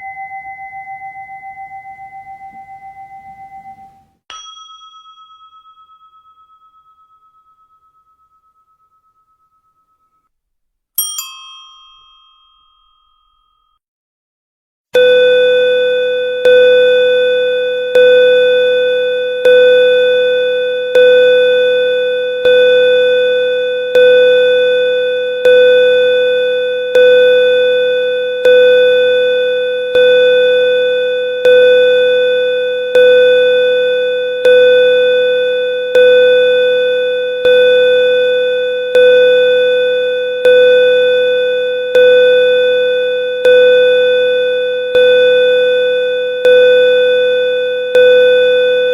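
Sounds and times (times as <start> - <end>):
small high-pitched bell ringing: 0.0 - 10.3, 11.0 - 13.8, 15.0 - 48.9
lower bell tolling: 11.0 - 13.8.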